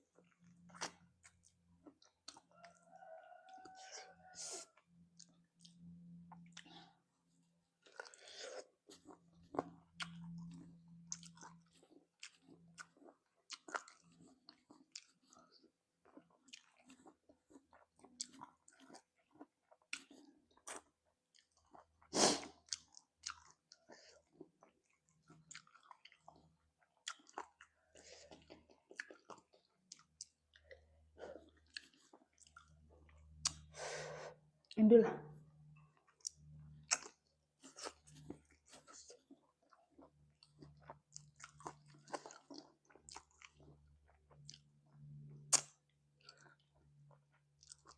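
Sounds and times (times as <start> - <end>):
crunchy chewing and biting: 7.9 - 15.5, 16.2 - 30.6, 36.2 - 47.9.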